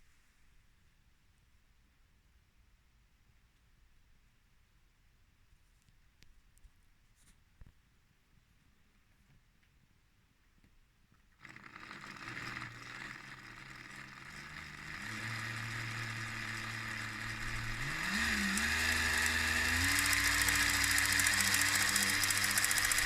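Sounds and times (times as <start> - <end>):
toy train motor whirring: 11.4 - 23.0.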